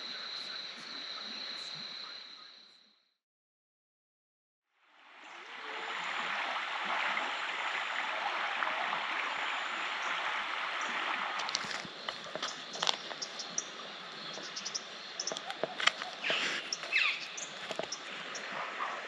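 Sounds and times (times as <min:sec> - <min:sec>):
river water rushing: 0:05.0 - 0:19.0.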